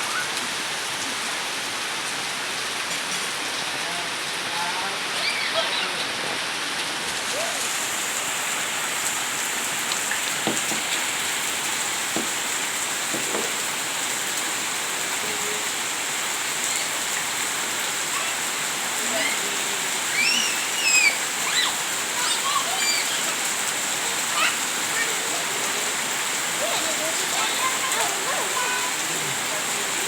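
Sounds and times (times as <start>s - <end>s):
heavy rain pattering: 0.0s - 30.0s
faint voices calling out: 15.0s - 30.0s.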